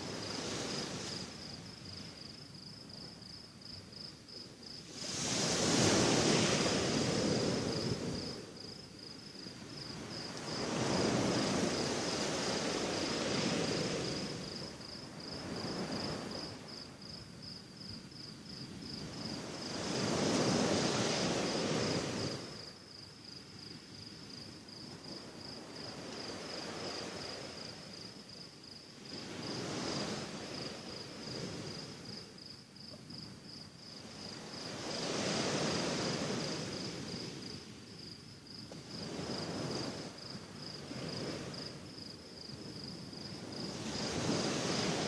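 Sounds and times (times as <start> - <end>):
sea waves washing onto shore: 0.0 - 2.2, 4.8 - 8.7, 9.7 - 16.8, 19.0 - 22.8, 29.0 - 32.3, 34.0 - 37.9, 38.7 - 45.0
insects chirping: 0.0 - 45.0.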